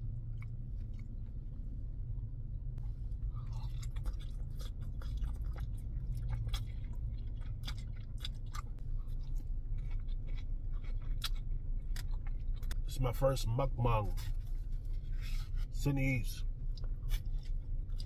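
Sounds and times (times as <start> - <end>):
steady low hum: 0.0 - 18.0
wet chewing and slurping noodles: 3.2 - 12.8, 16.7 - 18.0.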